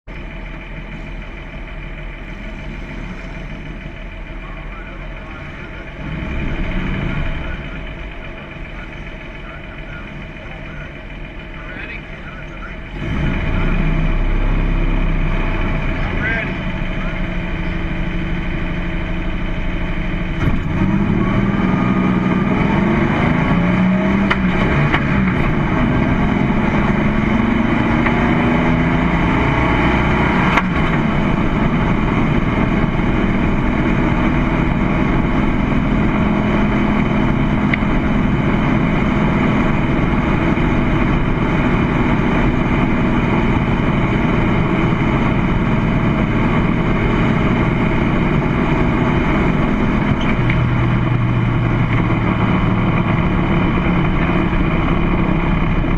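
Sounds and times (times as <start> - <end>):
truck engine revving: 0.0 - 55.9.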